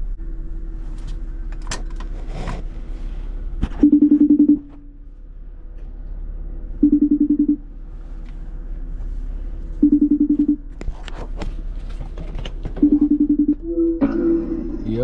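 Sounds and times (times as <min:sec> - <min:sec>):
phone vibrating buzz: 0:03.8 - 0:04.8, 0:06.8 - 0:07.6, 0:09.8 - 0:10.6, 0:12.8 - 0:14.0.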